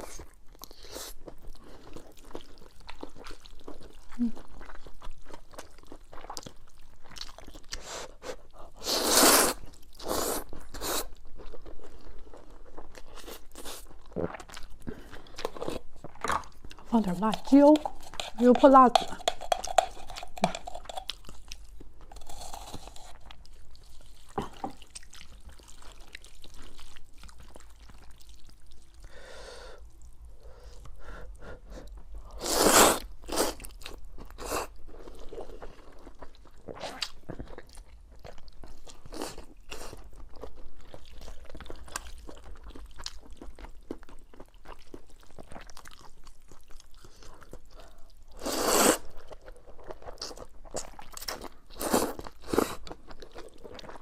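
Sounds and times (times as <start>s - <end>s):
person chewing crunchy noodles: 0.0s - 54.0s
clicking mouth sounds: 17.3s - 21.2s.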